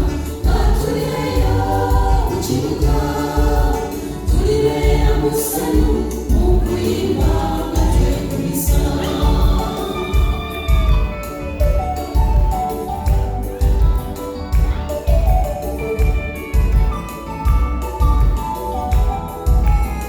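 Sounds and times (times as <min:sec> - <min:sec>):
gospel choir singing: 0:00.0 - 0:11.6
low beat: 0:00.0 - 0:20.0.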